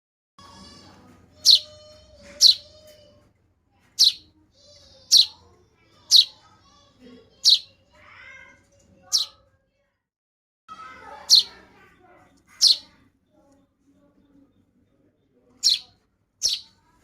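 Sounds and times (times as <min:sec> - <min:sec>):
baby birds chirping: 0:00.6 - 0:03.1, 0:04.0 - 0:08.0, 0:09.0 - 0:09.4, 0:10.9 - 0:13.1, 0:15.6 - 0:16.9
faint buzzy bird calls: 0:01.4 - 0:02.7, 0:04.0 - 0:04.3, 0:04.9 - 0:06.4, 0:07.4 - 0:07.8, 0:11.0 - 0:13.0, 0:15.6 - 0:16.9.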